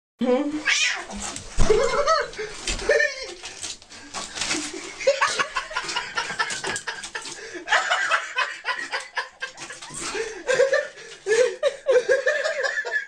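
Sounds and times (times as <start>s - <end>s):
person laughing: 1.6s - 3.4s, 4.7s - 13.0s.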